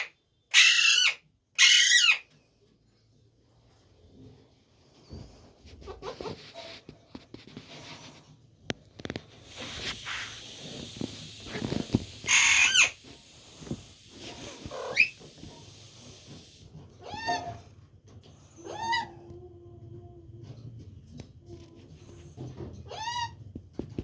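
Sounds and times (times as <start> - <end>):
parrot squawking: 0.0 - 2.3, 11.6 - 13.3, 14.3 - 15.8
clicks and rustles: 4.1 - 12.4
parrot rising call: 12.2 - 13.0, 14.5 - 15.2.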